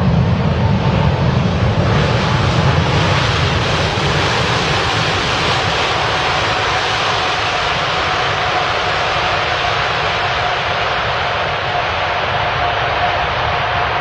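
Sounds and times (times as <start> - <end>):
faint jet engine whine: 0.0 - 14.0
jet engines rushing and rumbling: 0.0 - 14.0.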